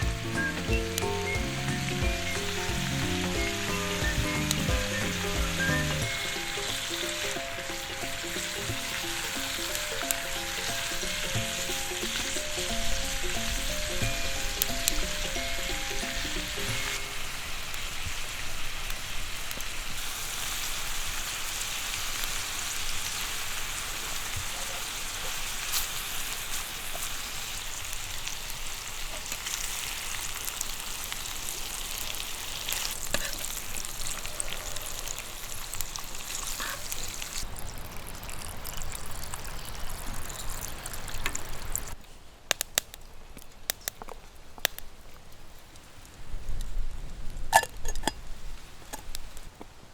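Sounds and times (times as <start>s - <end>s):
food sizzling in a pan: 0.0s - 42.0s
sharp clicks: 42.5s - 44.9s.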